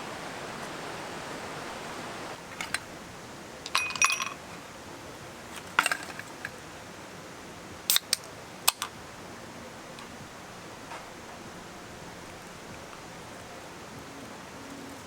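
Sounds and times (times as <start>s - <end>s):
stream water rushing: 0.0s - 15.0s
metal gear clicking and clinking: 2.5s - 2.8s, 3.7s - 4.4s, 5.6s - 6.5s.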